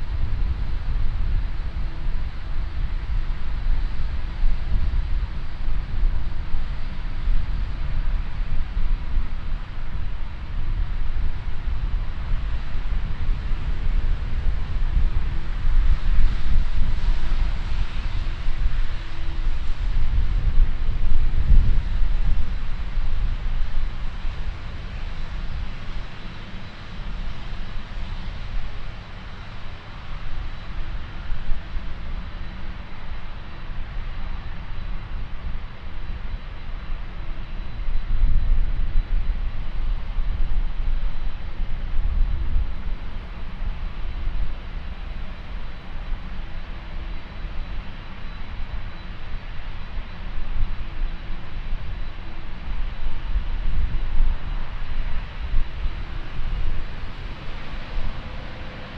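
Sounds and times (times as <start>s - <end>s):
jet engines rumbling: 0.0s - 58.9s
wind buffeting microphone: 0.0s - 58.9s.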